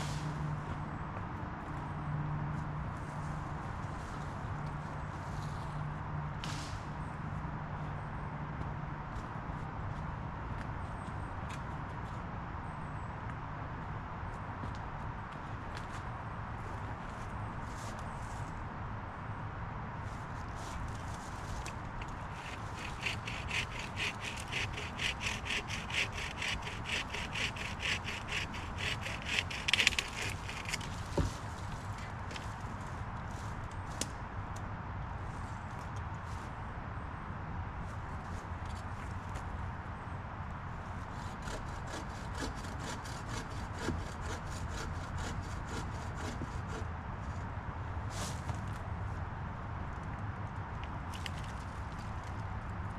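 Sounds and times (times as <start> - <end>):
hand saw cutting wood: 22.0 - 31.1, 41.2 - 46.9.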